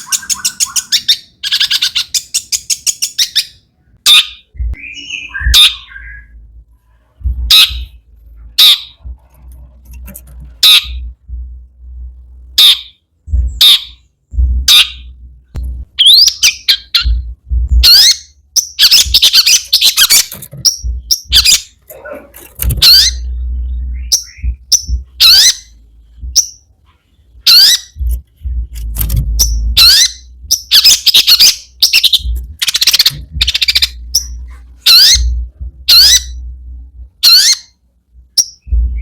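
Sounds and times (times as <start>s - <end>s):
bird singing harsh squawks and whistles: 0.0s - 6.4s, 7.5s - 8.0s, 8.6s - 9.0s, 12.6s - 14.1s, 14.7s - 15.1s, 16.0s - 17.2s, 17.8s - 21.8s, 22.8s - 25.8s, 27.4s - 28.0s, 29.4s - 36.4s, 37.2s - 37.8s.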